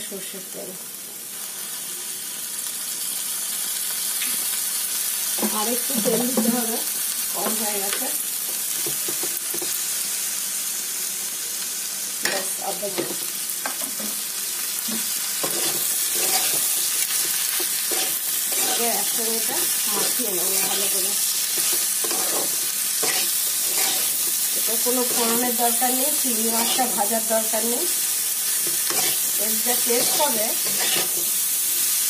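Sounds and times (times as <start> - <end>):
food sizzling in hot oil: 0.0 - 32.0
spatula scraping a pan: 15.4 - 19.2, 19.8 - 24.4, 28.6 - 31.3.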